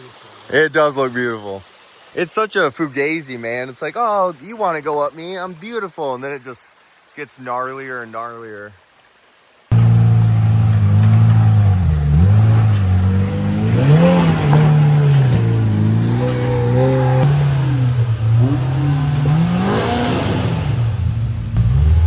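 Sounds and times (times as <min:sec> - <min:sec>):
utility vehicle engine revving: 0:09.7 - 0:22.0.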